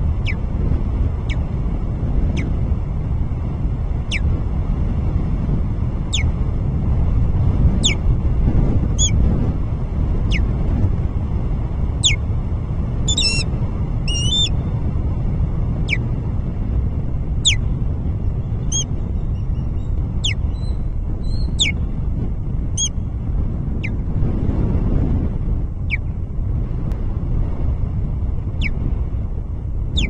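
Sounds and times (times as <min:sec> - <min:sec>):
steady low rumble: 0:00.0 - 0:30.0
osprey whistled calls: 0:00.2 - 0:00.4, 0:04.1 - 0:04.3, 0:06.1 - 0:06.3, 0:07.8 - 0:08.0, 0:09.0 - 0:09.2, 0:10.3 - 0:10.5, 0:13.1 - 0:13.5, 0:14.1 - 0:14.6, 0:17.4 - 0:17.6, 0:18.6 - 0:21.8, 0:22.8 - 0:23.0.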